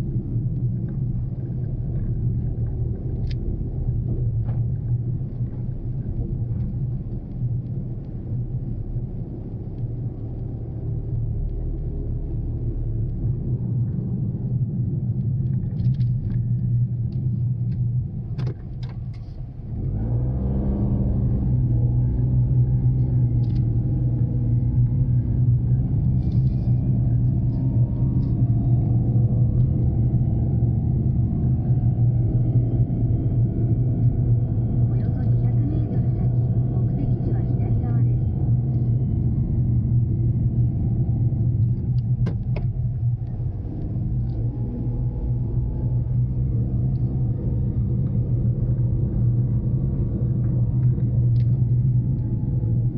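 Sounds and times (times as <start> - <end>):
road rumble: 0.0 - 52.9
small car engine running: 18.3 - 52.9.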